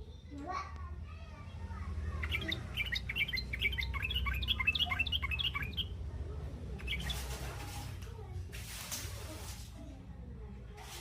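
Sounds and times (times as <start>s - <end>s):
bird chattering in high chirps: 2.2s - 6.0s, 6.8s - 7.4s.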